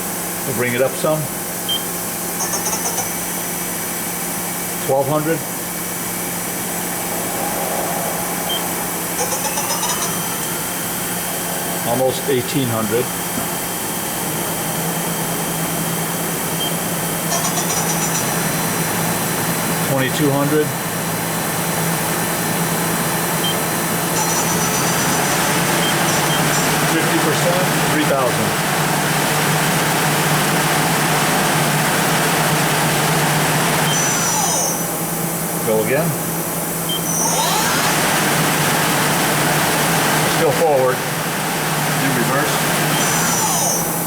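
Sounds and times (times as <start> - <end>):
lathe spindle whirring: 0.0 - 35.6, 36.2 - 44.0
steady machine hum: 0.0 - 44.0
brief high pulsing sound: 5.6 - 11.9.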